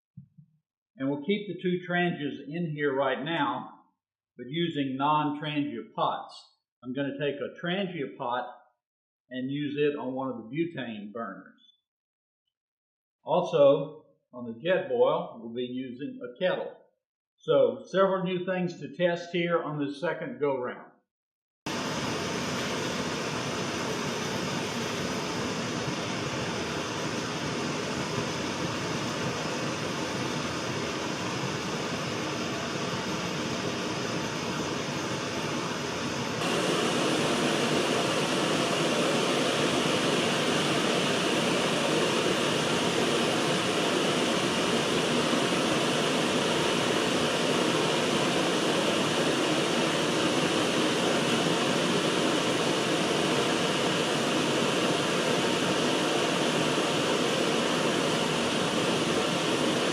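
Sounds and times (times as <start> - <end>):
camping stove burners hissing: 21.7 - 59.9.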